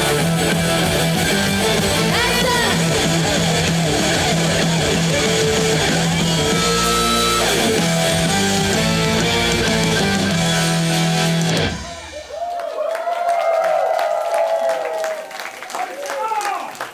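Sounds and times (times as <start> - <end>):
loud live rock music: 0.0 - 12.4
audience cheering: 11.3 - 16.9.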